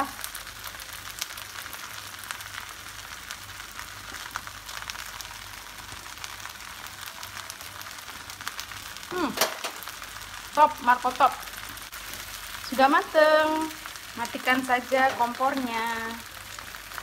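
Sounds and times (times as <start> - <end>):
noodles sizzling in pan: 0.0 - 17.0
small crackles: 0.0 - 17.0.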